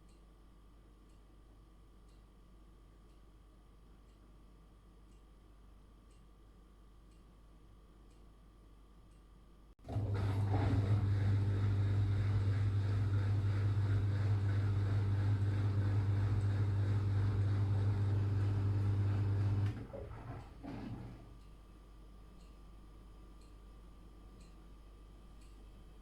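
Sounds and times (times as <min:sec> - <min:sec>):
drain pump humming: 0:09.8 - 0:21.4
rattles and sloshing in drum: 0:19.6 - 0:21.4.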